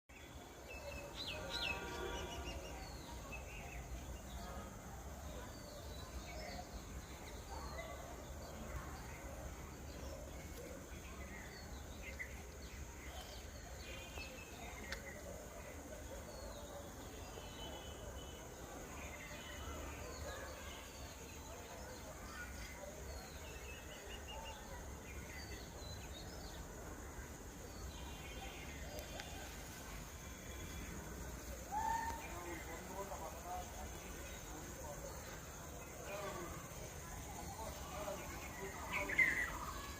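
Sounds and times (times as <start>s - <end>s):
birds chirping and trilling: 16.4s - 39.9s.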